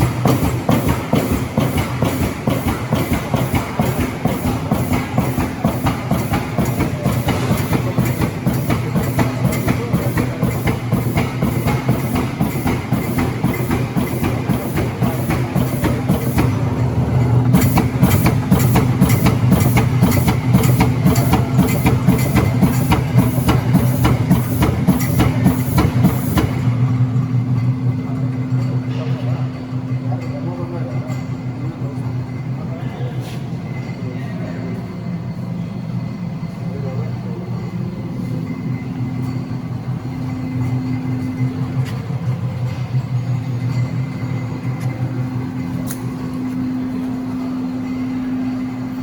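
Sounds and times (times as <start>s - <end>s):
machine hum: 0.0s - 32.8s.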